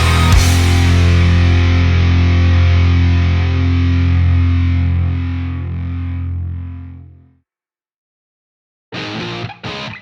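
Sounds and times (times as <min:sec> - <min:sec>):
distorted electric guitar chord: 0:00.0 - 0:07.2.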